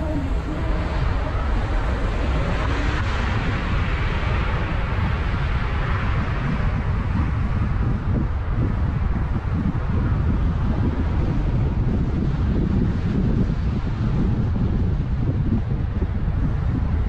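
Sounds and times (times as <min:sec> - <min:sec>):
car road and wind noise: 0:00.0 - 0:17.0.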